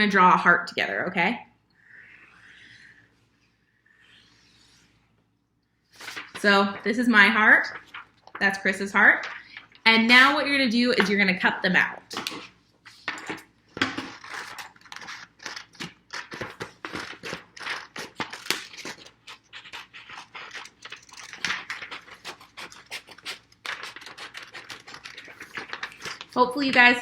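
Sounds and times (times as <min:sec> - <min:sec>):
scissors snipping paper: 0:14.0 - 0:26.4.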